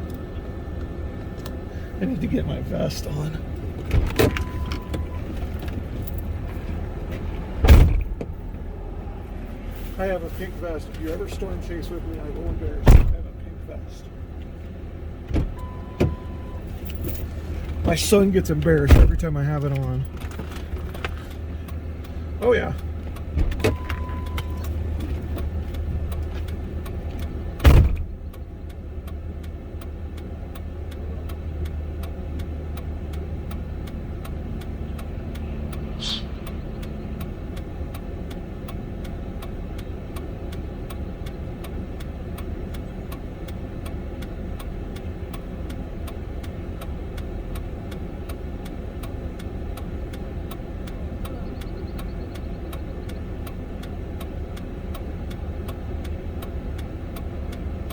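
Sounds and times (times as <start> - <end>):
truck engine idling: 0.0 - 57.9
loud thump: 7.6 - 8.4, 12.8 - 13.3
faint even ticking: 21.4 - 57.9.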